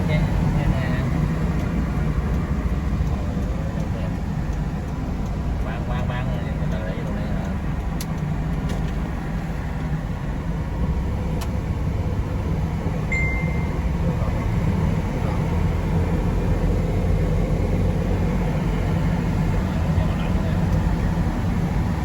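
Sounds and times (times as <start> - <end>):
road vehicle rumbling: 0.0 - 22.0
high beep: 13.1 - 14.0.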